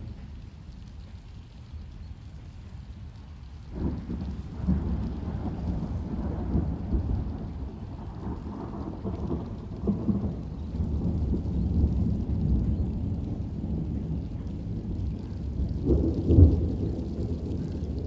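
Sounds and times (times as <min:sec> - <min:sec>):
heavy rain: 0:00.0 - 0:18.0
thunder rumbling: 0:03.6 - 0:18.0.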